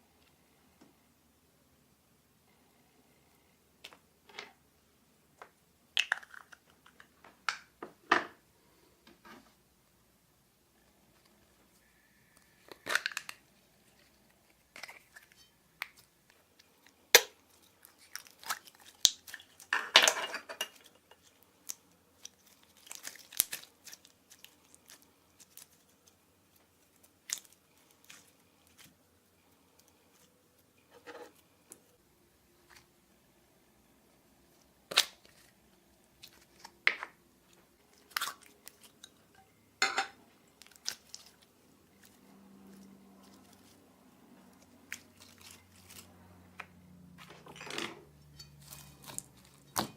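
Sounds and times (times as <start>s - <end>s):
slime clicking and crackling: 17.1s - 19.7s, 21.6s - 26.2s, 40.6s - 42.2s.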